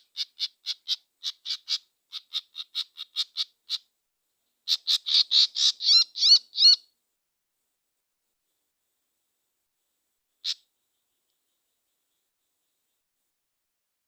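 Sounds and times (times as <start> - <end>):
small bird calling: 0.0 - 3.9, 4.6 - 7.0, 10.4 - 13.0.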